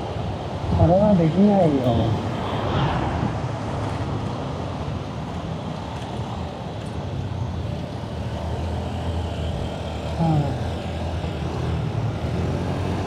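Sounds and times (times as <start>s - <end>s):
wind rumble on microphone: 0.0s - 8.3s
road traffic: 0.0s - 13.0s.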